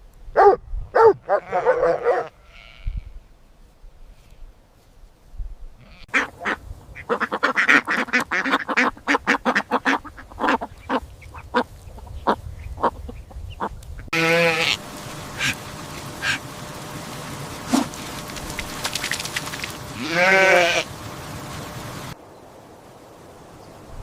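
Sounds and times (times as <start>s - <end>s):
short bleat: 1.3s - 3.1s, 5.8s - 6.2s, 14.1s - 14.8s, 20.0s - 20.9s
ducks quacking: 5.8s - 22.2s
steady hiss: 14.2s - 24.0s.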